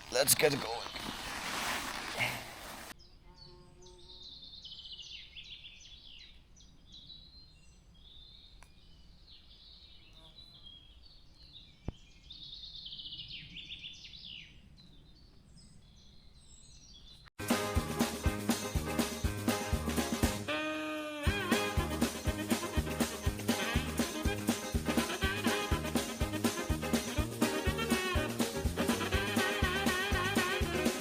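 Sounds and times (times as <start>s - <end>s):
songbirds singing: 3.0s - 17.3s.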